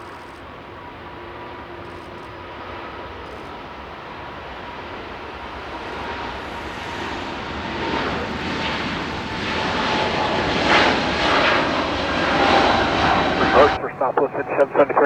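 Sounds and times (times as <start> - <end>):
jet engines rushing: 0.5 - 15.0.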